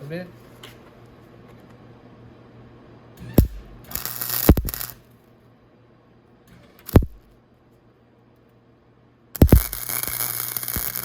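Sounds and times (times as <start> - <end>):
sharp clicks: 3.4 - 5.0, 6.9 - 7.2, 9.4 - 11.0
welding arc crackling: 3.4 - 5.0, 6.9 - 7.2, 9.4 - 11.0.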